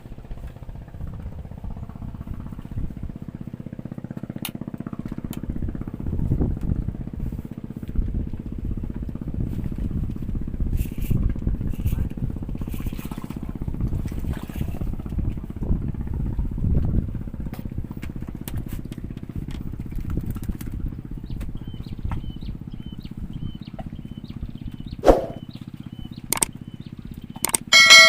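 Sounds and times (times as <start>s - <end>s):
small engine running: 0.0s - 16.7s.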